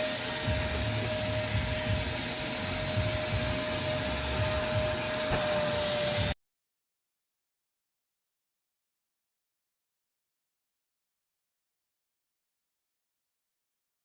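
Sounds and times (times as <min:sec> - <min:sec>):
shop vacuum running: 0:00.0 - 0:06.4.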